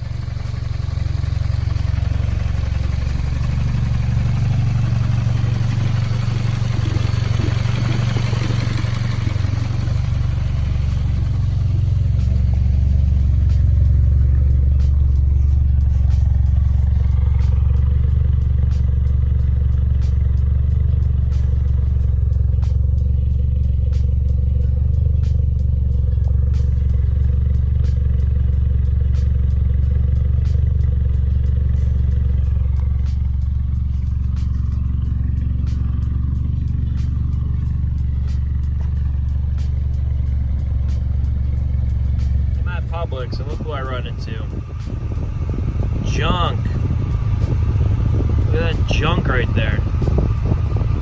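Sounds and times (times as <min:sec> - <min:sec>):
car engine droning: 0:00.0 - 0:51.0.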